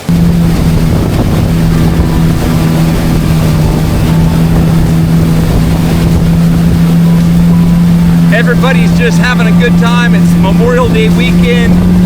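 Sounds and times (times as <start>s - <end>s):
jet ski engine droning: 0.0s - 12.0s.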